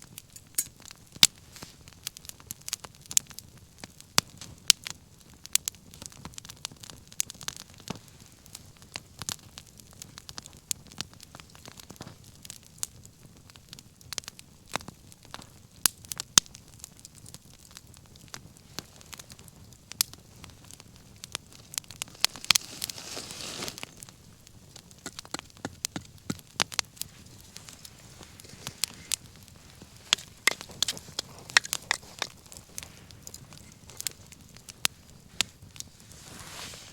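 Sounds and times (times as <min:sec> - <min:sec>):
wood bonfire crackling and popping: 0:00.0 - 0:36.3
burning wood snapping: 0:18.1 - 0:35.0.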